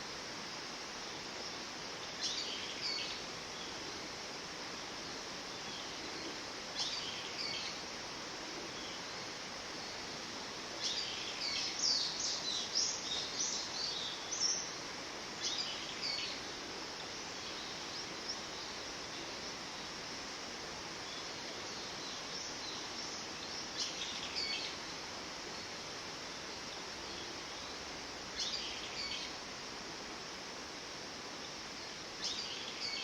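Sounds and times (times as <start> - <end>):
steady background hiss: 0.0 - 33.0
bird singing: 28.4 - 29.3, 32.2 - 33.0.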